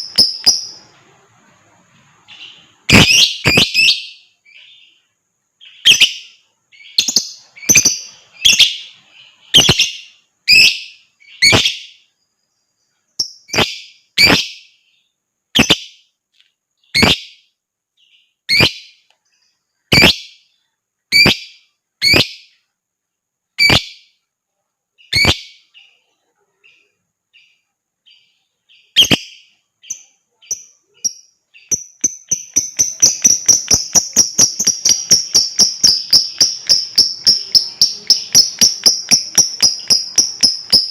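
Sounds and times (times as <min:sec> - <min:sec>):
lovebird shrill calls: 0:00.0 - 0:00.9, 0:02.3 - 0:04.8, 0:05.6 - 0:12.0, 0:13.5 - 0:14.7, 0:16.9 - 0:17.4, 0:18.5 - 0:19.0, 0:19.9 - 0:20.4, 0:21.1 - 0:22.5, 0:23.6 - 0:24.1, 0:25.0 - 0:25.6, 0:28.8 - 0:40.9.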